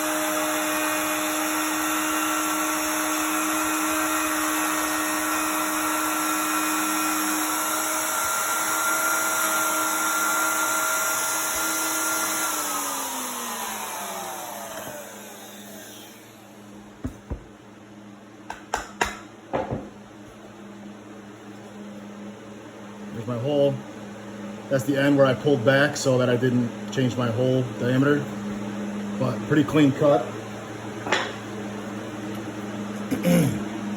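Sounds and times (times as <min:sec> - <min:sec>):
motor spinning down: 0:00.0 - 0:16.7
router whining: 0:00.0 - 0:17.4.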